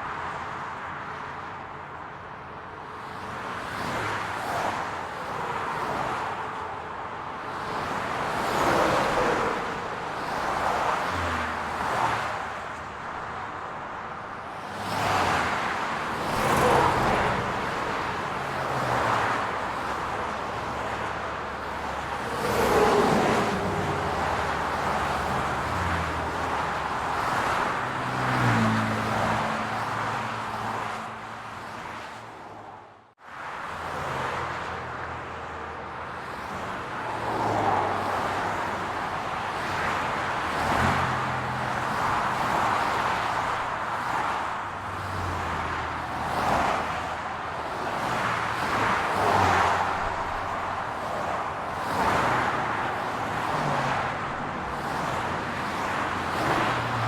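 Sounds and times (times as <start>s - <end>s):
cars passing: 0.0s - 57.0s.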